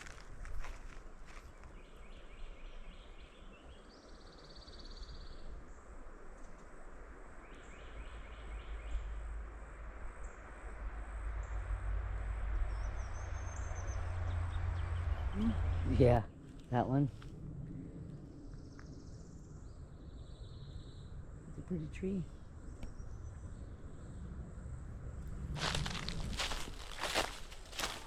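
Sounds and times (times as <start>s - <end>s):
low rumble: 9.0s - 28.0s
birds trilling: 25.1s - 28.0s.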